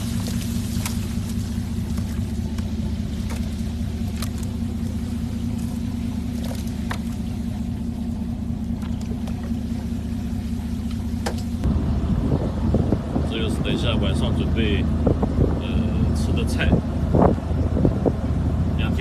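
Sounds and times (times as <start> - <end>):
boat engine droning: 0.0 - 19.0
sharp clicks and knocks: 10.9 - 11.7.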